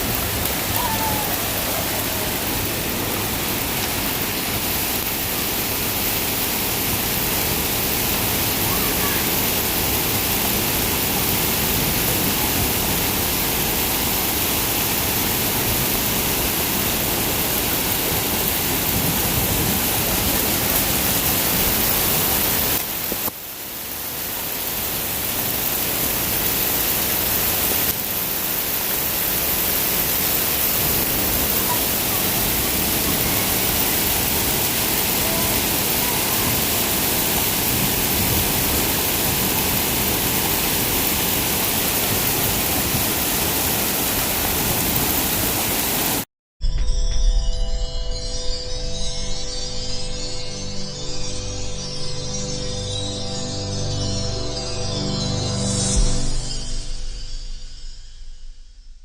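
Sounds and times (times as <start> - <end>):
heavy rain falling: 0.0 - 46.3.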